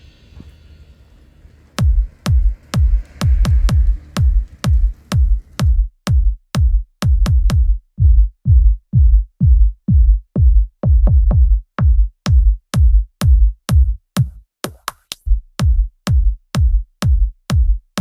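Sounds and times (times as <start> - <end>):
electronic dance music: 0.0 - 5.7
drum machine kick: 1.5 - 18.0.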